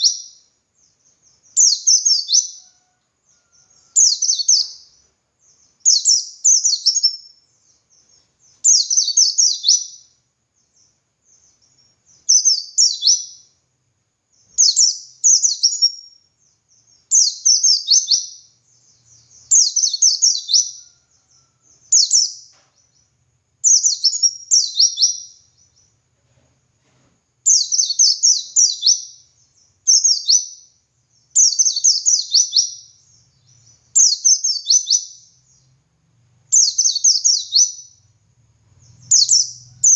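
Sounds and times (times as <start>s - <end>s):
bird twittering: 36.5s - 38.0s, 38.8s - 39.9s.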